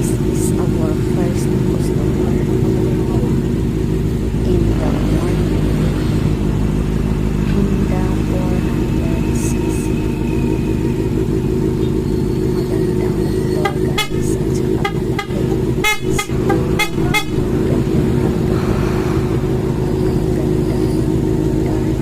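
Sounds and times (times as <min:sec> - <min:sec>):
motorcycle engine running: 0:00.0 - 0:22.0
short horn toots: 0:13.6 - 0:17.7.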